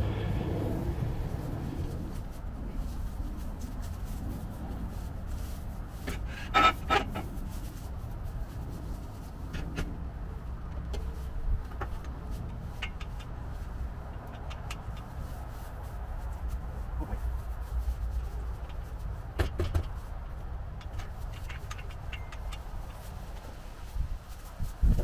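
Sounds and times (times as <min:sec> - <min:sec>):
steady low rumble: 0:00.0 - 0:06.3.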